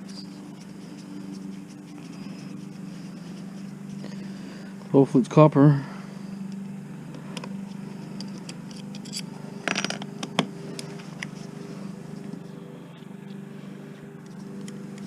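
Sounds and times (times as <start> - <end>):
low hum: 0.0 - 15.0
metallic scraping: 7.6 - 12.1.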